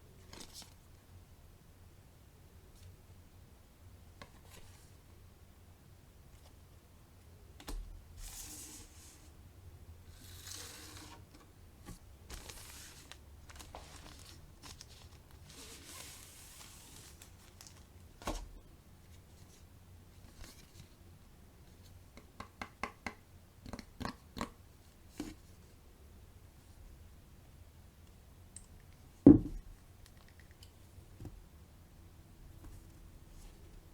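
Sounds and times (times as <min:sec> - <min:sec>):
packaging crinkling and tearing: 0:12.3 - 0:17.9.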